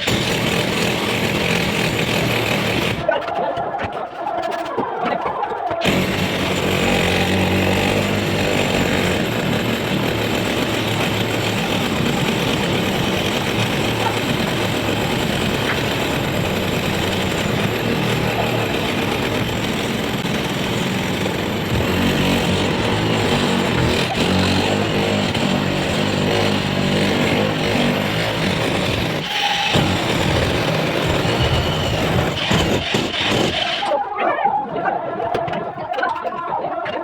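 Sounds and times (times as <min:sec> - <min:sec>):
engine droning: 0:05.8 - 0:33.9.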